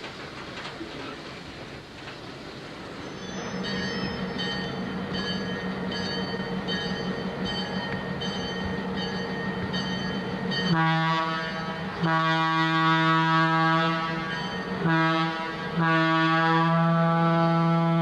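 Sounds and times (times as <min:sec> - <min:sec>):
diesel locomotive engine drone: 0:00.0 - 0:18.0
high pulsing ringing: 0:03.6 - 0:10.8
locomotive air horn: 0:10.7 - 0:18.0.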